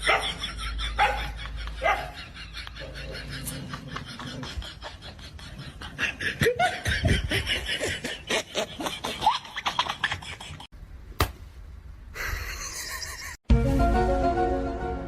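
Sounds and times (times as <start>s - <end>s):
person laughing: 0.0s - 10.7s, 12.2s - 13.4s.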